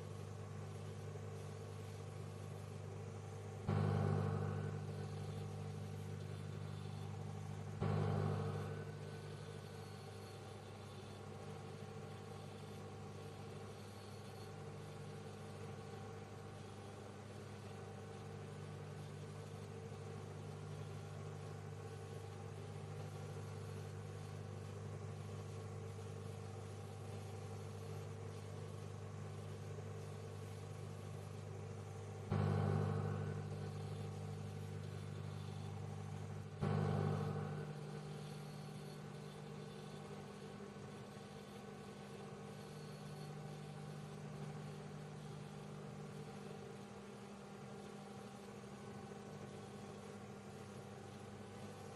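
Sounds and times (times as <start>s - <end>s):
microwave oven humming: 0.0s - 51.9s.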